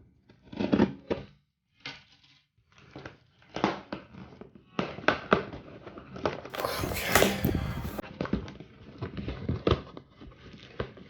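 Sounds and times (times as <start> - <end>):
cardboard packaging rustling and tearing: 6.5 - 8.0.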